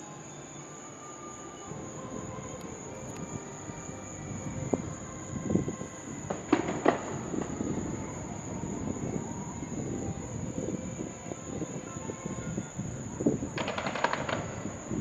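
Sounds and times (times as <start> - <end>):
distant fireworks booming: 1.7 - 12.6, 13.2 - 15.0
sharp firework bangs: 6.2 - 7.9, 13.6 - 15.0.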